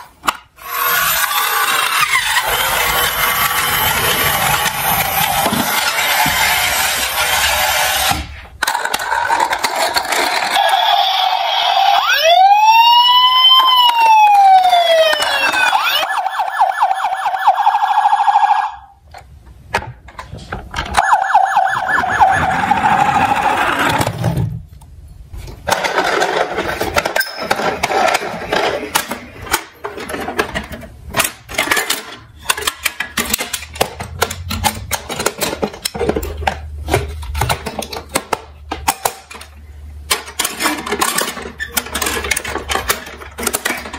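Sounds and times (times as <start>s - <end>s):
toy vehicles clicking and rattling: 0.0s - 12.0s, 13.5s - 16.2s, 25.6s - 43.9s
electronic toy siren: 10.5s - 19.0s, 20.9s - 23.6s.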